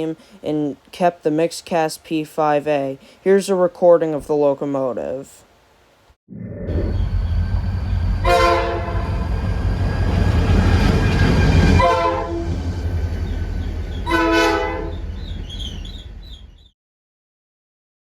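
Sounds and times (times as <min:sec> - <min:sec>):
diesel engine rumbling: 0:06.7 - 0:11.0
locomotive air horn blasts: 0:08.2 - 0:09.4, 0:11.2 - 0:12.7, 0:14.0 - 0:15.1.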